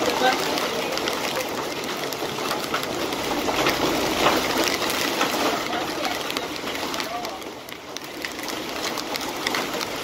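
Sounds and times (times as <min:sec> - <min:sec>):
heavy rain downpour: 0:00.0 - 0:10.0
raindrops tapping on car: 0:00.0 - 0:10.0.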